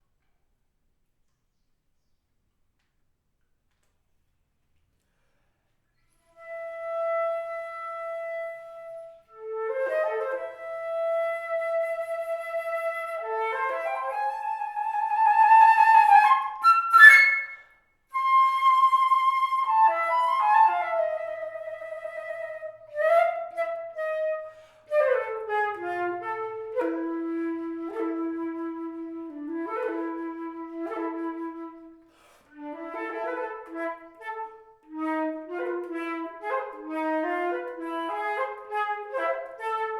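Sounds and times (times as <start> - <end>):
flute melody: 6.4 - 39.9.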